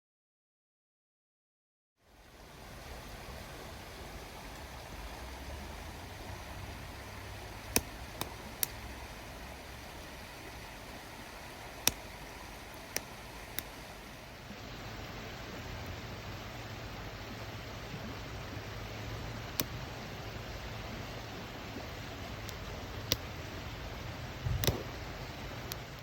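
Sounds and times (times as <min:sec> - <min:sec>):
wood fire crackling: 0:02.2 - 0:14.6, 0:17.9 - 0:26.0
steady rushing noise: 0:02.2 - 0:26.0
burning wood popping: 0:02.7 - 0:14.5, 0:21.4 - 0:26.0.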